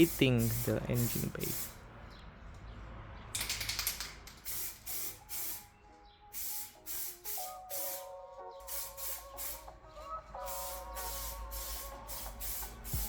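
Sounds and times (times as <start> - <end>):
paint spraying in hissing bursts: 0.0 - 1.8, 3.8 - 13.0
faint background music: 4.5 - 13.0.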